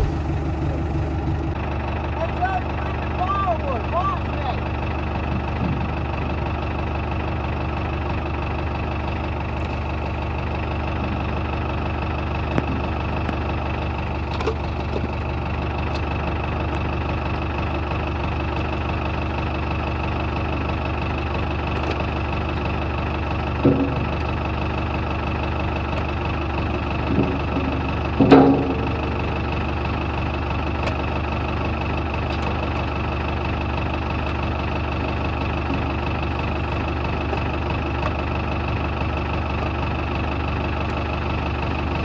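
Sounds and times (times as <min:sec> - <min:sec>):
metal clunks: 0:00.0 - 0:01.2, 0:23.4 - 0:24.8, 0:25.9 - 0:30.2
backhoe engine running: 0:00.0 - 0:42.0.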